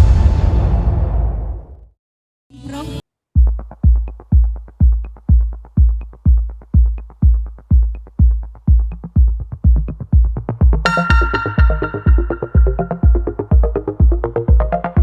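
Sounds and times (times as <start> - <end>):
drum machine kick beat: 3.4 - 15.0
synth chord: 10.8 - 15.0.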